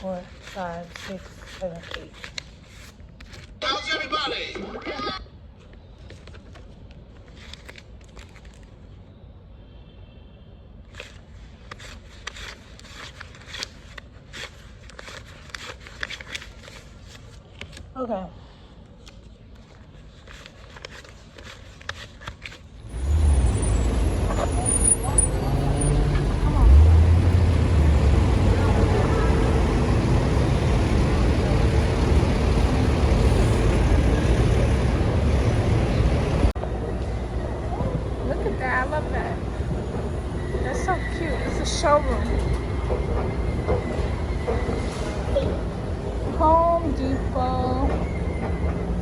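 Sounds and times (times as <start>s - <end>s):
road traffic rumble and hiss: 5.4s - 47.8s
banknotes rustling and snapping: 10.9s - 17.9s, 19.0s - 22.8s.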